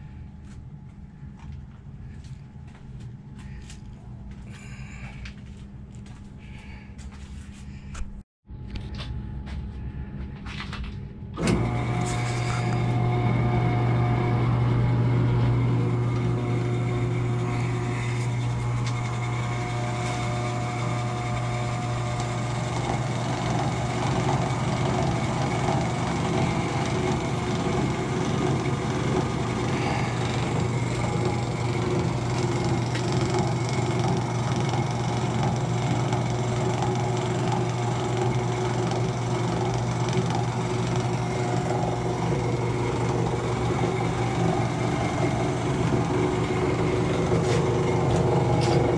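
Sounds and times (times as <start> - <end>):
milling machine motor hum: 11.4 - 48.9.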